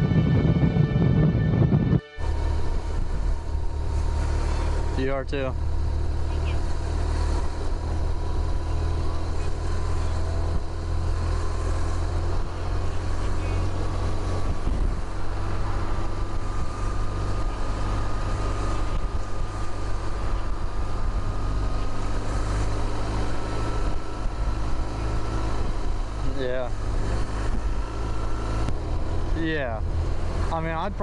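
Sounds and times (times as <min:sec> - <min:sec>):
faint rising tone: 0:00.0 - 0:09.1
motorcycle engine running: 0:00.0 - 0:31.0
wind and road noise: 0:00.0 - 0:31.0.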